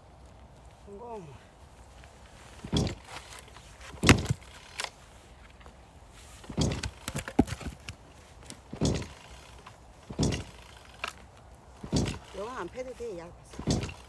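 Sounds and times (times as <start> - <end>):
axe splitting firewood: 2.5 - 5.0, 6.3 - 14.0.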